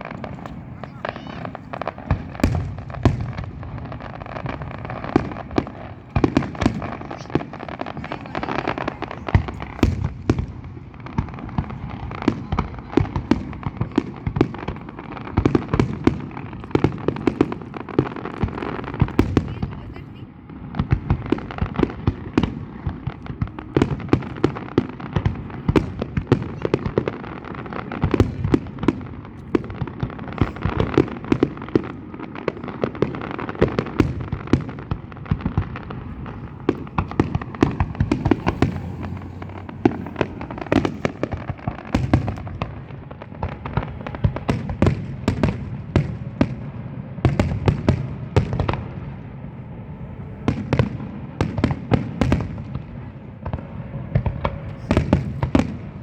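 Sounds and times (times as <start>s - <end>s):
fireworks bangs and crackles: 0.0s - 56.0s
low rumble of shells bursting: 33.8s - 46.6s.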